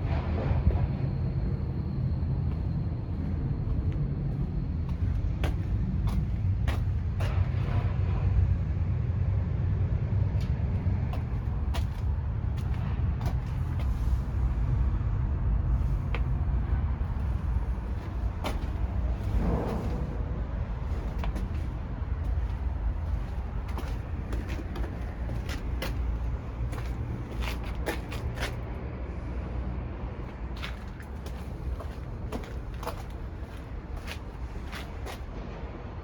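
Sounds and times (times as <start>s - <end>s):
diesel truck engine idling: 1.1s - 7.8s, 10.6s - 29.4s, 30.2s - 35.2s.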